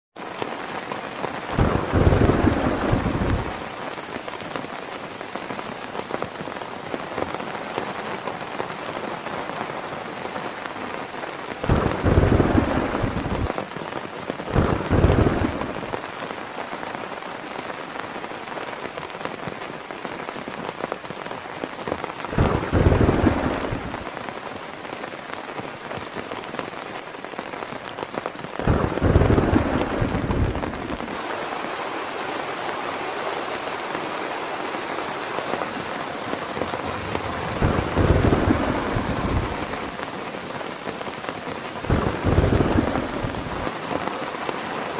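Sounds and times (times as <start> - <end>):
heavy rain falling: 0.2 - 44.9
thunder rumbling: 1.5 - 3.7, 11.6 - 13.6, 14.5 - 16.0, 22.3 - 24.2, 28.6 - 31.2, 36.0 - 40.1, 41.8 - 43.9.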